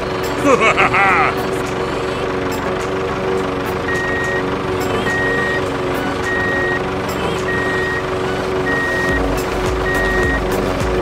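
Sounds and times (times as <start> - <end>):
engine hum: 0.0 - 11.0
reversing alarm beeping: 3.7 - 10.7.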